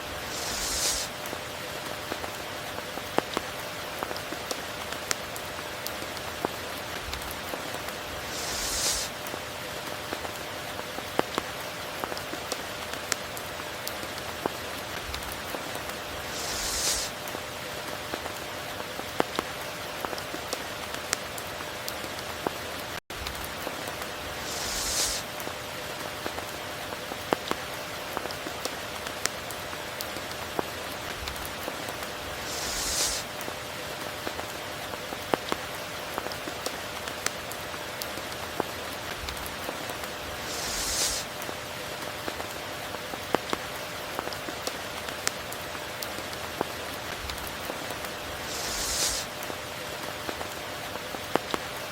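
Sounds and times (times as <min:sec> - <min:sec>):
heavy rain falling: 0:23.2 - 0:49.8.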